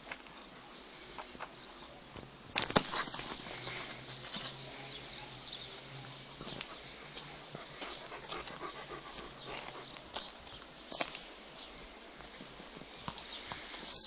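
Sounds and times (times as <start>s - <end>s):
steady hiss: 0.0s - 14.0s
light clicks and scuffs: 6.4s - 14.0s
dog making soft sounds: 6.5s - 10.1s.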